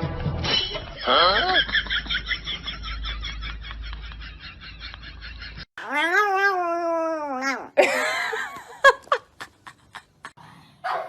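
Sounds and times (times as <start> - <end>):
cat yowling: 5.8 - 7.8.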